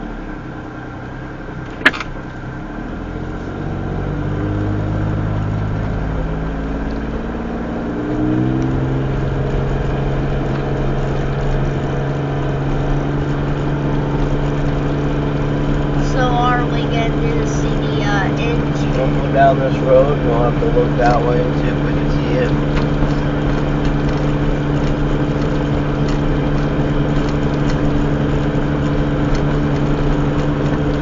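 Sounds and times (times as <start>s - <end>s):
car engine accelerating: 0.0s - 31.0s
sharp click: 1.7s - 2.2s.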